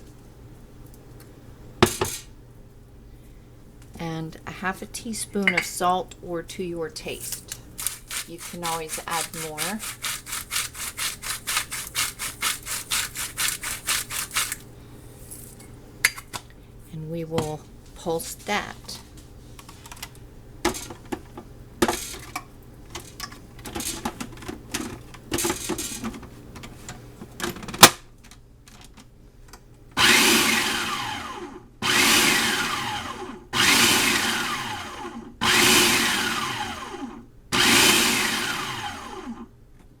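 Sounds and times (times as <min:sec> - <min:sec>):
food processor pulsing: 0:07.8 - 0:14.6, 0:30.0 - 0:39.4.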